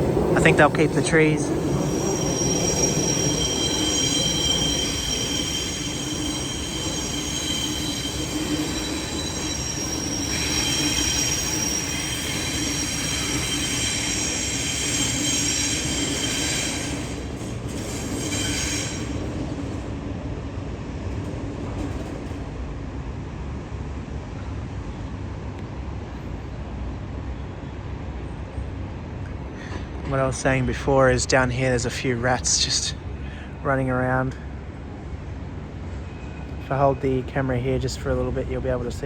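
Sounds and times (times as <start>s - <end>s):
train wheels squealing: 0.0s - 19.8s, 35.8s - 37.3s
low rail rumble: 0.0s - 39.0s.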